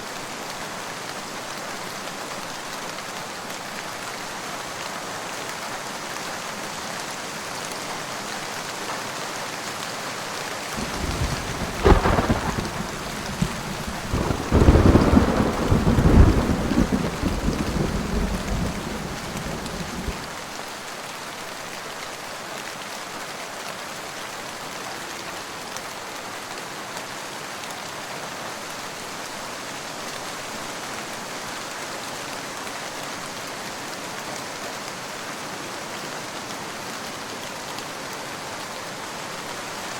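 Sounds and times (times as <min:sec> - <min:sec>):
steady rain: 0:00.0 - 0:39.9
thunderclap and rolling rumble: 0:10.8 - 0:20.4.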